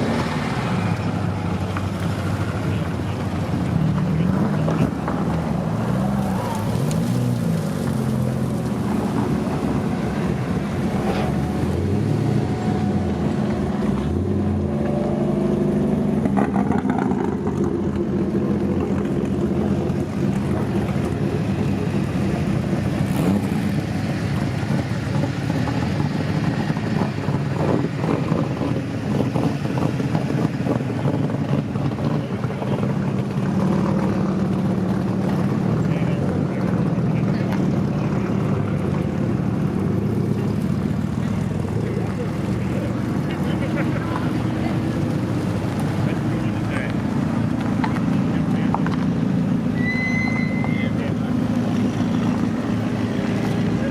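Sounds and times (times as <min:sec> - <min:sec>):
race car engines running: 0:00.0 - 0:53.9
faint voices: 0:01.8 - 0:11.1, 0:30.1 - 0:49.8.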